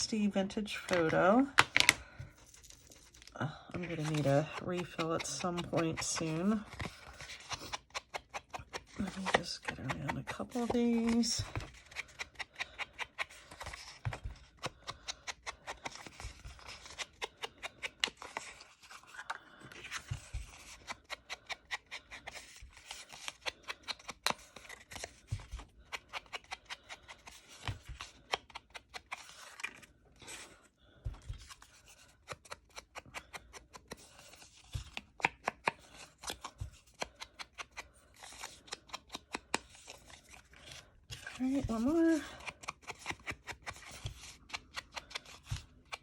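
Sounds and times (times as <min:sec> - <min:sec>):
paper tags tapping and scraping: 0:00.7 - 0:30.5, 0:31.1 - 0:46.0.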